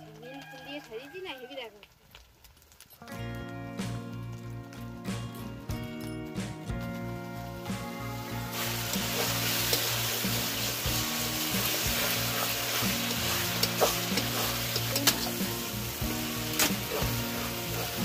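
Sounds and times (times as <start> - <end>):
food sizzling in a pan: 0.0 - 4.2, 6.9 - 18.0
soft background music: 3.2 - 18.0
spatula clicking and scraping: 11.6 - 15.4.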